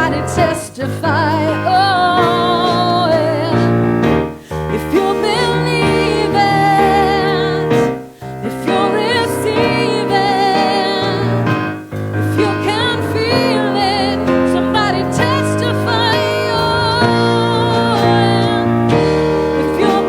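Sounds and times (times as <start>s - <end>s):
keyboard chords: 0.0s - 20.0s
singer holding long notes: 0.0s - 20.0s.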